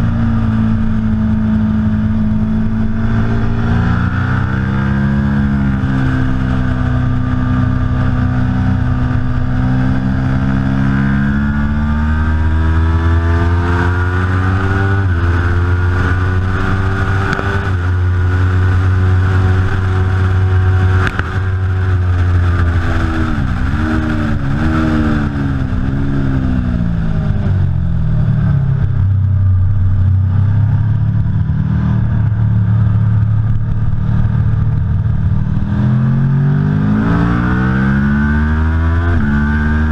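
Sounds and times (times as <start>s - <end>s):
motorcycle engine running hard: 0.0s - 39.9s.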